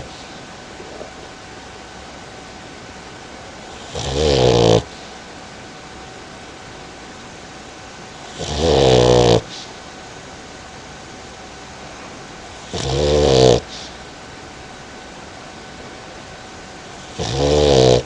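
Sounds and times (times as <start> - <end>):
dog snoring: 0.0 - 1.4, 3.6 - 5.1, 8.1 - 9.7, 12.6 - 14.0, 16.9 - 18.0.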